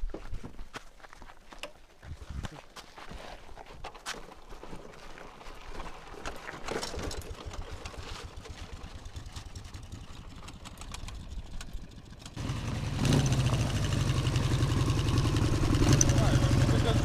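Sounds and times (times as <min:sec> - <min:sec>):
motorcycle engine cranking: 0:06.7 - 0:17.0
motorcycle engine running: 0:07.4 - 0:17.0.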